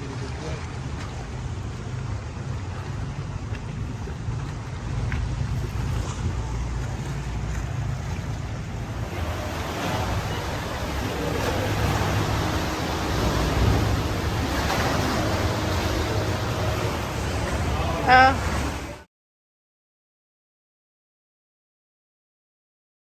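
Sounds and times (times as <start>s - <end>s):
boat engine hum: 0.0s - 19.1s
sea water splashing: 0.0s - 19.1s
wind on microphone: 0.8s - 19.0s.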